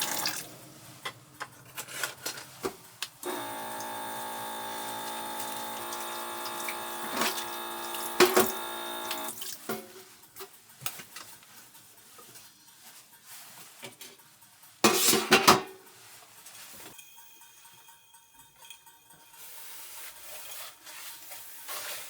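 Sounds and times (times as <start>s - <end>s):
water running from a tap: 0.0s - 0.5s, 3.2s - 9.6s.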